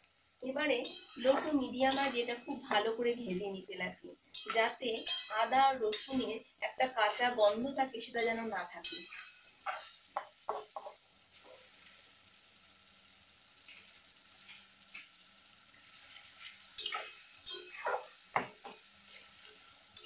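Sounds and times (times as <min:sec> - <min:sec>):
onions sizzling in oil: 0:00.0 - 0:20.0
metal spatula scraping pan: 0:00.8 - 0:03.0, 0:04.3 - 0:06.3, 0:08.2 - 0:11.5, 0:15.8 - 0:20.0.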